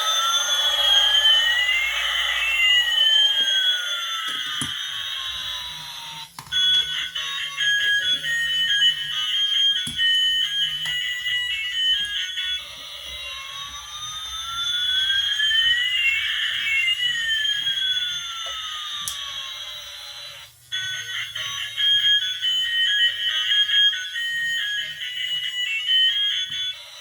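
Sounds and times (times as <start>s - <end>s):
electronic beeps melody: 0.0s - 5.2s
long sweeping electronic tone: 0.0s - 6.0s.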